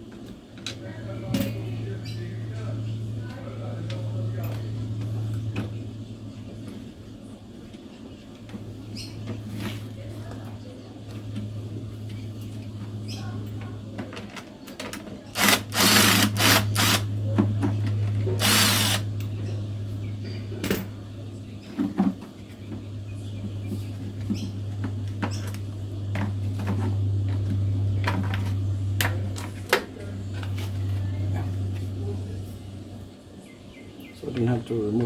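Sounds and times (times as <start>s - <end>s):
steady low hum: 0.0s - 35.0s
cordless drill bursts: 15.4s - 17.1s, 18.4s - 19.1s.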